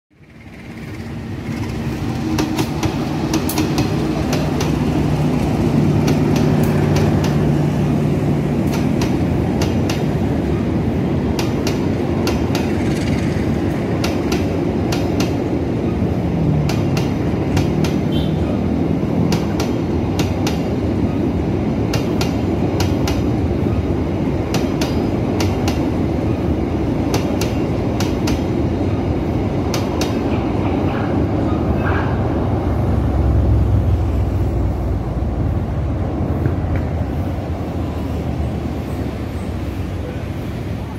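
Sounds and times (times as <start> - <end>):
train rumble: 0.1 - 40.9
train wheels clacking over rail joints: 0.5 - 7.6, 8.5 - 10.3, 11.2 - 18.2, 19.2 - 20.8, 21.8 - 23.4, 24.4 - 26.4, 27.0 - 28.5.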